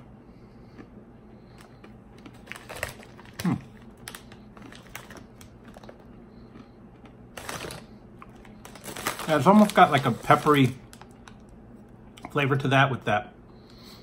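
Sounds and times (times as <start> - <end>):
person chewing crunchy snacks: 0.6 - 11.5.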